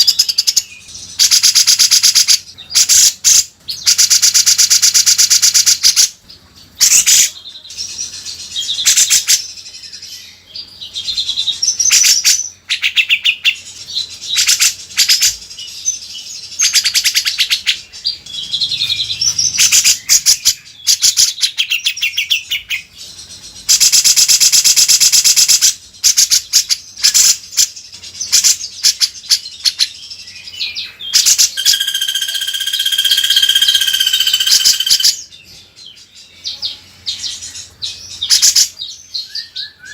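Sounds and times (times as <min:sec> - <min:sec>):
bird singing rattling notes: 0:11.8 - 0:29.8, 0:30.5 - 0:36.0
bird steady whistle: 0:31.2 - 0:35.2.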